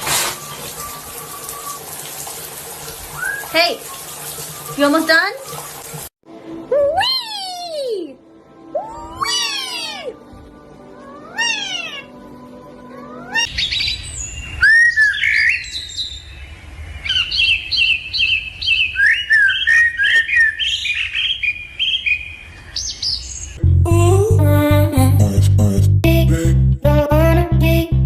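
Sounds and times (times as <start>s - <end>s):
bird chirping and whistling: 3.2s - 3.6s, 8.8s - 10.1s, 13.3s - 16.4s, 17.1s - 23.6s
meow-like calls: 8.8s - 10.2s, 11.0s - 12.2s, 12.9s - 13.5s.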